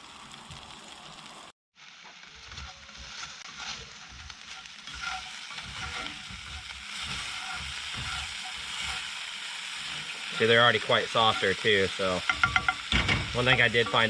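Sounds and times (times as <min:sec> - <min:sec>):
potatoes sizzling in a pan: 0:00.0 - 0:14.0
utensil knocking while stirring: 0:12.2 - 0:14.0.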